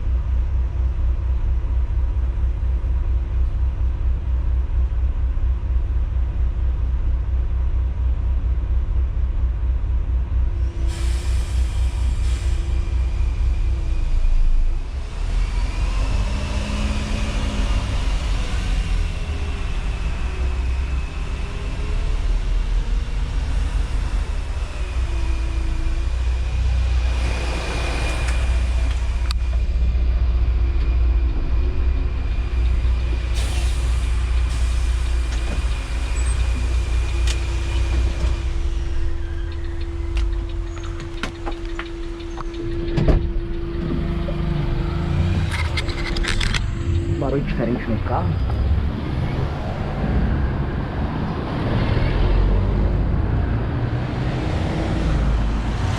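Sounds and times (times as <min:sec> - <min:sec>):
bus engine rumble: 0:00.0 - 0:55.9
thin steady whine: 0:24.3 - 0:48.9.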